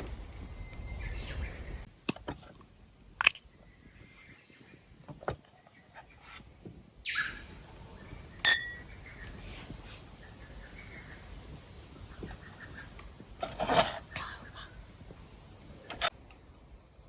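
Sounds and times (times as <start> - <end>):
sharp clink with ringing tone: 8.4 - 8.8.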